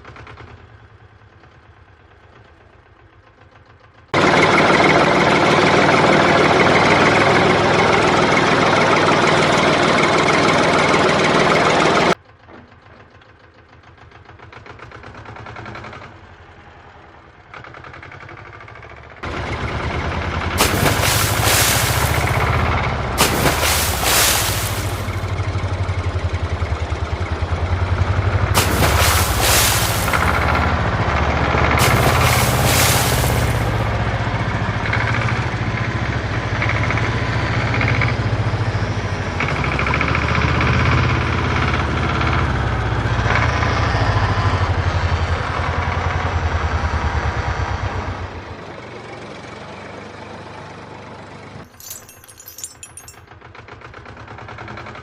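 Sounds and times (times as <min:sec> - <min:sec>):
heavy vehicle engine chugging: 0:00.0 - 0:20.6, 0:25.0 - 0:28.6.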